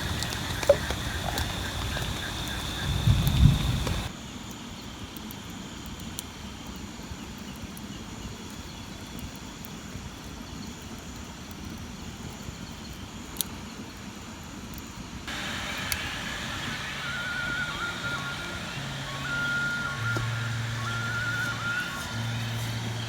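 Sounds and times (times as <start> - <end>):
faint sharp ticks: 0.0 - 4.1
outdoor background rumble: 0.0 - 4.1, 15.3 - 23.0.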